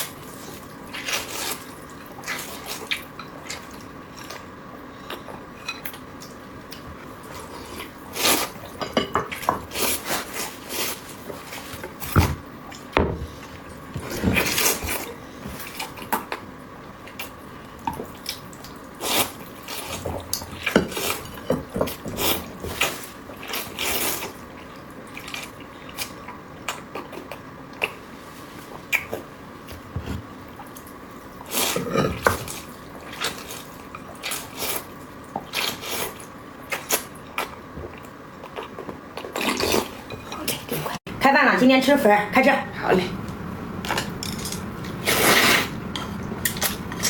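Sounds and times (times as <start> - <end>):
person chewing noodles: 31.5 - 40.0.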